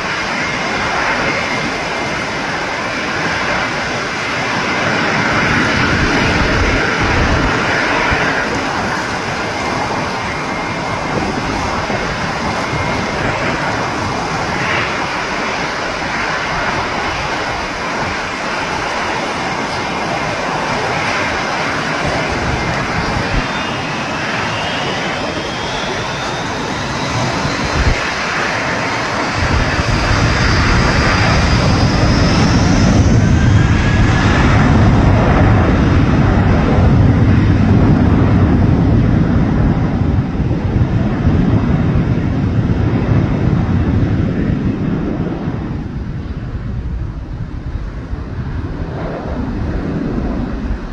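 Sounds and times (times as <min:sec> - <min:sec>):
high engine whine: 0:00.0 - 0:50.9
jet airliner passing overhead: 0:00.0 - 0:50.9.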